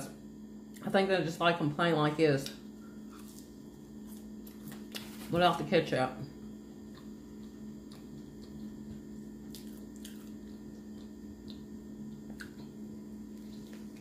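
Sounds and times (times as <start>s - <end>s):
steady low hum: 0.0s - 14.0s
person biting and chewing: 3.0s - 5.3s, 6.8s - 14.0s.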